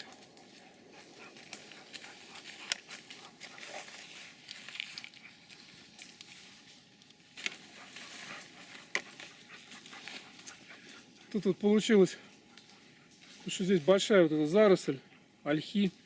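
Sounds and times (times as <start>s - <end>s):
twigs snapping: 0.0s - 11.3s
leaves and twigs rustling: 0.0s - 16.0s.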